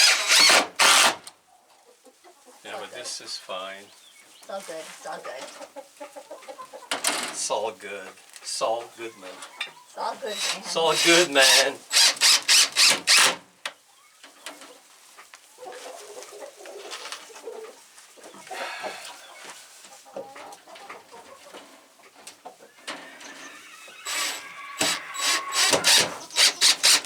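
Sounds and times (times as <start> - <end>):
loud rasping strokes: 0.0 - 1.2, 10.2 - 13.4, 24.0 - 27.0
chickens clucking: 1.4 - 11.8, 13.7 - 27.0.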